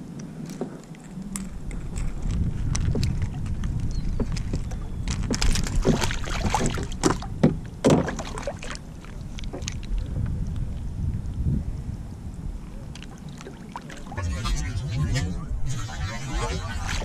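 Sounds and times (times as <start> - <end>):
wind rumble on microphone: 0.0 - 7.8, 8.8 - 13.3, 13.9 - 17.0
water splashing around a kayak: 2.9 - 10.2, 12.8 - 14.2.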